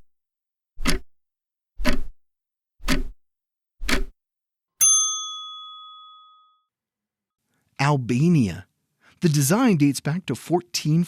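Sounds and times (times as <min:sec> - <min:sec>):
clock ticking: 0:00.8 - 0:01.1, 0:01.8 - 0:02.1, 0:02.8 - 0:03.2, 0:03.8 - 0:04.1
bell ding: 0:04.8 - 0:06.7.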